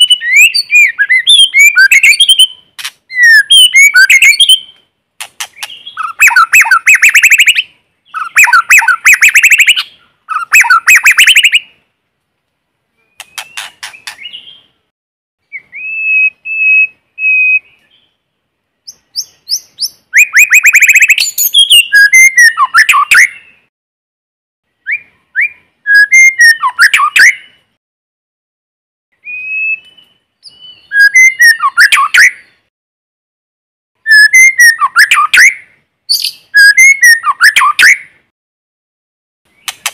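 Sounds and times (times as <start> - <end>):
songbird whistles and trills: 0.0 - 11.8, 13.0 - 14.7, 15.4 - 18.1, 18.8 - 23.7, 24.8 - 27.6, 29.2 - 32.7, 34.0 - 38.1.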